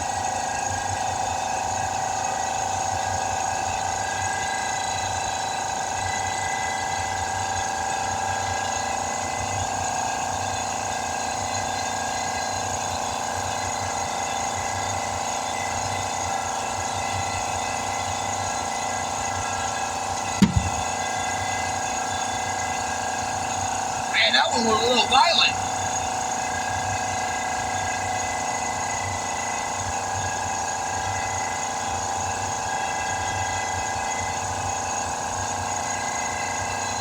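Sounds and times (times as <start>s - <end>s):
air compressor running: 18.1s - 21.5s
tire bead popping bang: 20.4s - 21.0s.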